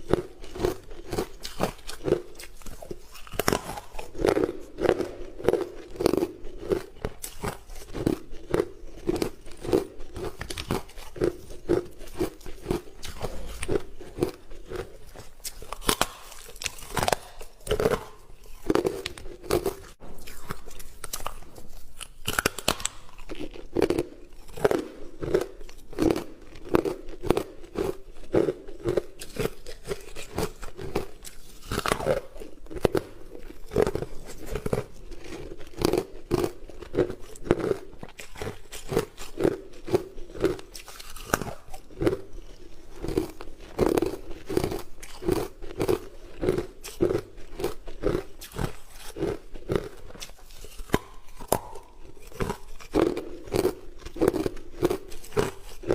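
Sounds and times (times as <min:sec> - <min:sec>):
crunching chews of ice: 0:00.0 - 0:55.9
ice cracking as bitten: 0:15.5 - 0:21.4.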